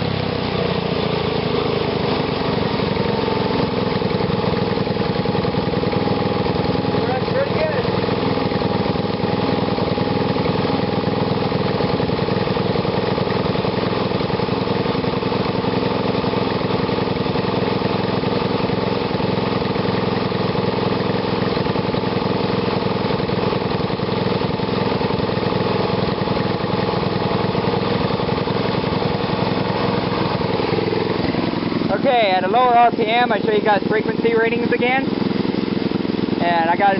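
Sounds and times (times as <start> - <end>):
small engine running steadily: 0.0 - 36.9.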